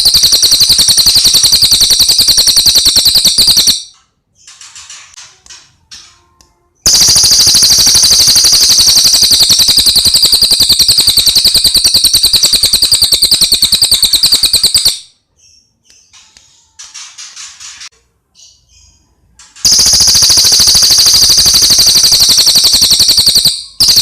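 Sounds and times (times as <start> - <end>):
songbird rattling trill: 0.0 - 3.9, 6.9 - 15.1, 19.6 - 24.0.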